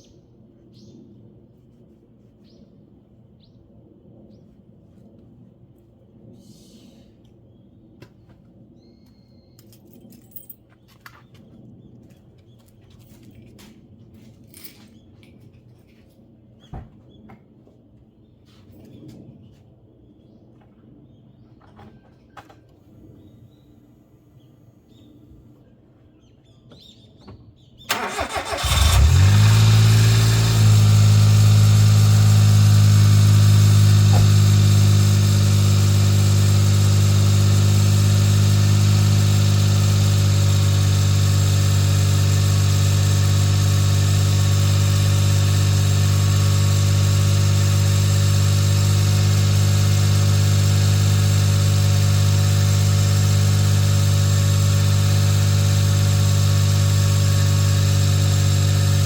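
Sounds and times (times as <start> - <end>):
car engine starting and idling: 27.9 - 59.0.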